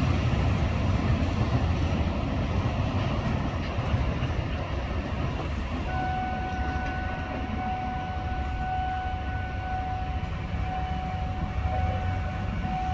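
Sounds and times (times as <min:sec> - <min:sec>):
freight train rumbling: 0:00.0 - 0:12.9
steady high tone: 0:05.9 - 0:12.9.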